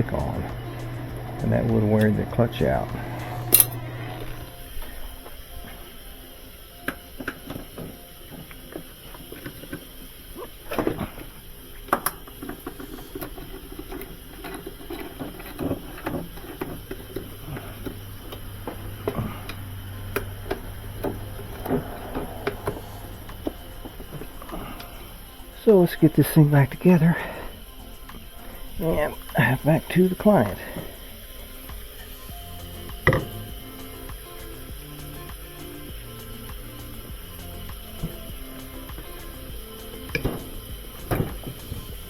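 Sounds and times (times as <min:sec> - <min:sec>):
low steady hum: 0:00.0 - 0:42.0
metal parts clicking and knocking: 0:03.5 - 0:03.8.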